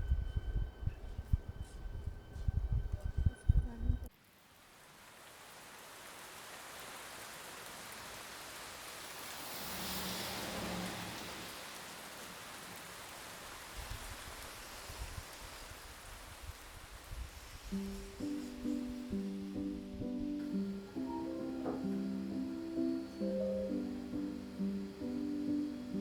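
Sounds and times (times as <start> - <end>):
steady rain hiss: 3.6 - 26.0.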